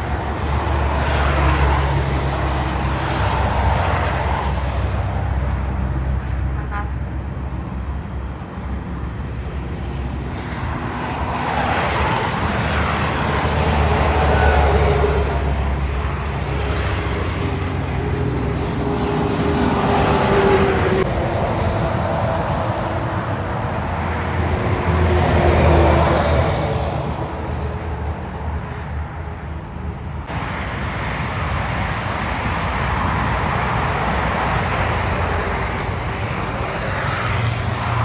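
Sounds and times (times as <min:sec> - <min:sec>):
diesel trucks passing: 0:00.0 - 0:38.0
heavy road traffic: 0:00.0 - 0:38.0.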